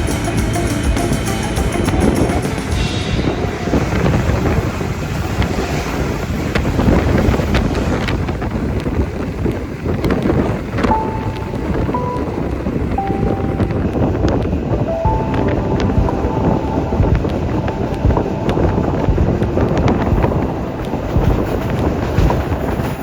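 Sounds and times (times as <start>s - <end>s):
moving train running noise: 0.0s - 23.0s
wind buffeting microphone: 1.6s - 23.0s.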